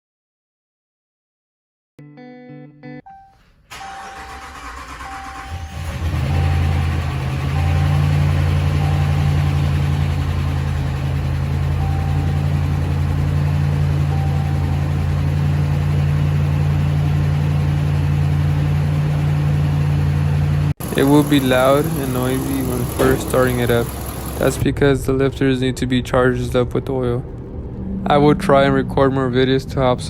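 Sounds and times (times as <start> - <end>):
engine idling: 3.7 - 24.6.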